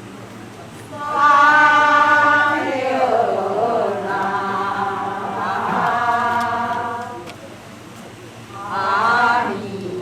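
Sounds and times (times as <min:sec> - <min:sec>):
voices chanting ritual song: 0:00.9 - 0:07.3, 0:08.5 - 0:10.0.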